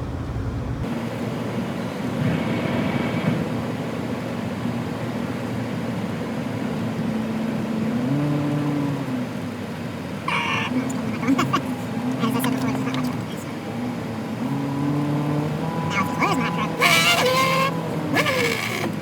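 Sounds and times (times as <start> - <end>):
pickup truck engine: 0.0 - 19.0
road noise inside cab: 0.0 - 19.0.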